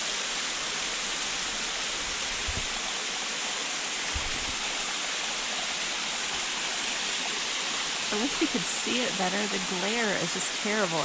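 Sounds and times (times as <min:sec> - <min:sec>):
waterfall rushing: 0:00.0 - 0:11.0
soft low bumps: 0:02.3 - 0:02.8, 0:04.1 - 0:04.7.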